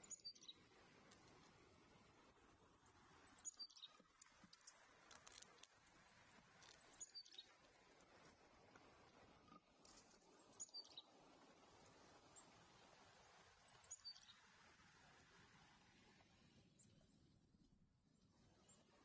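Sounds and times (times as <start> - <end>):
faint high bird chirps: 0.0 - 0.6, 3.4 - 4.8, 6.9 - 7.5, 10.5 - 11.1, 13.8 - 14.4.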